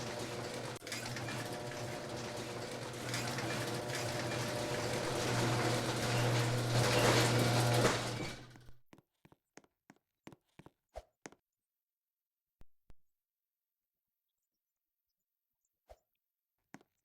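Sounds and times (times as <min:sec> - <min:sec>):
ceiling fan humming: 0:00.0 - 0:08.5.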